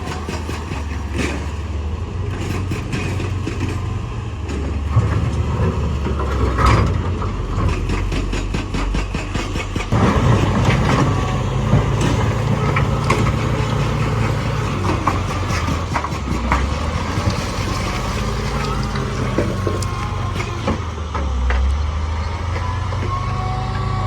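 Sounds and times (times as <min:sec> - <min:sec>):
heavy diesel engine running: 0:00.0 - 0:24.0
sharp knocks and clanks: 0:04.5 - 0:21.8.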